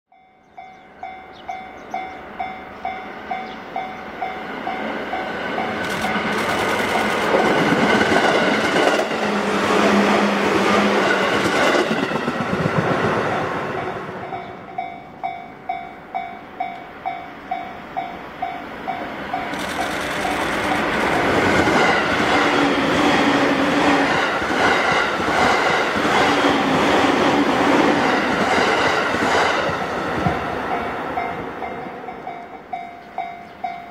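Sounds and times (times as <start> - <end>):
level-crossing bell clanging: 0.1 - 7.2, 30.7 - 33.9
electric train passing: 0.1 - 33.9.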